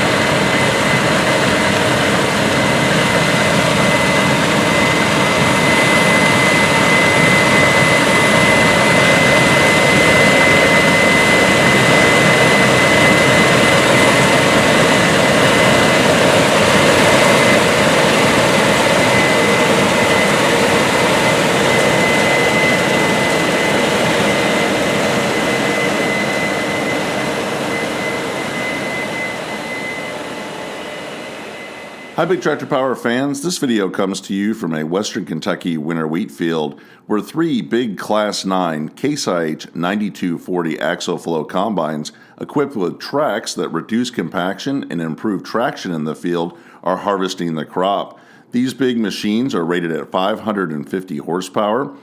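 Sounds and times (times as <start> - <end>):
combine harvester drone: 0.0 - 33.0
high machine whine: 0.0 - 33.2.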